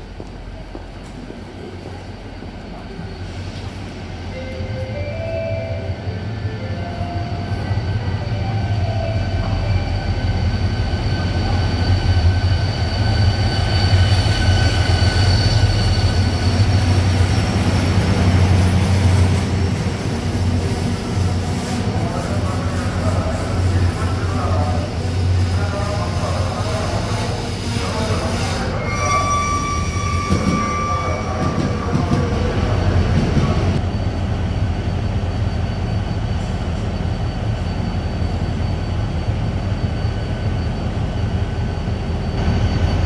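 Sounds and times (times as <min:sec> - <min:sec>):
high metallic wheel squeal: 0:07.3 - 0:17.2, 0:23.0 - 0:31.9, 0:34.8 - 0:43.0.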